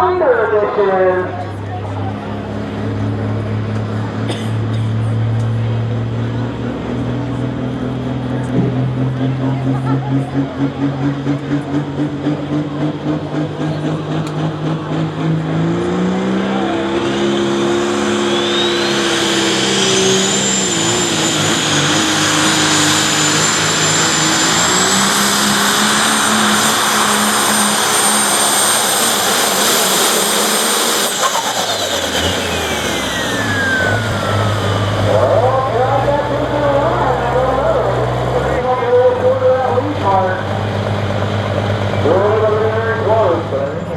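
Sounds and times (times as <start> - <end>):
tractor engine whining at full power: 0.0 - 43.9.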